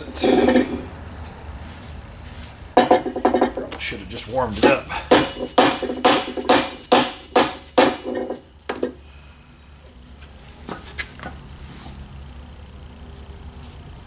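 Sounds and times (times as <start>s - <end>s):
hammer striking metal: 2.8s - 3.9s, 4.6s - 8.9s.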